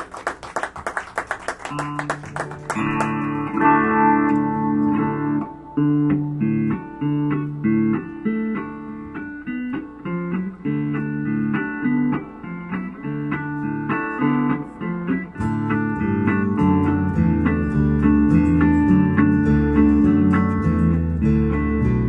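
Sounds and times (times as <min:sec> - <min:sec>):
audience applause: 0:00.0 - 0:03.6
guitar playing chord pattern: 0:01.7 - 0:22.0.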